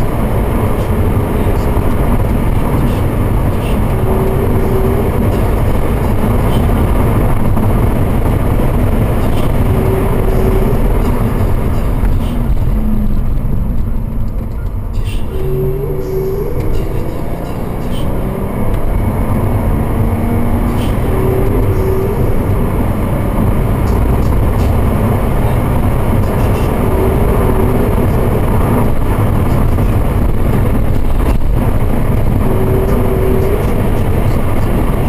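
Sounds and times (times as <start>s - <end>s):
car engine at speed: 0.0s - 35.0s.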